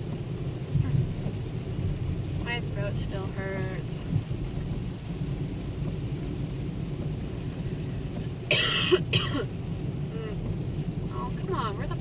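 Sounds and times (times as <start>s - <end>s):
car cabin rumble on wet road: 0.0s - 12.0s
downpour: 0.0s - 12.0s
person coughing: 8.5s - 9.5s.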